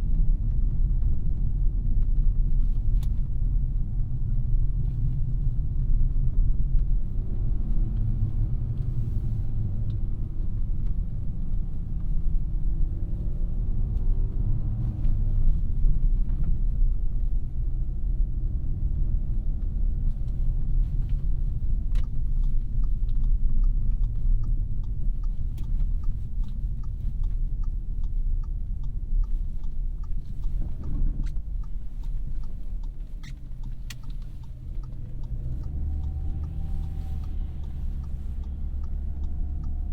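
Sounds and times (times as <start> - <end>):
car engine and road noise rumble: 0.0 - 39.9
light ticking: 19.5 - 39.9.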